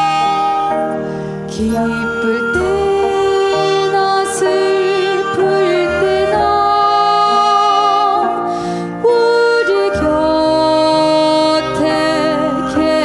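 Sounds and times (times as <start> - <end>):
bowed and wind instruments: 0.0 - 13.0
piano: 0.0 - 13.0
woman singing: 0.0 - 13.0.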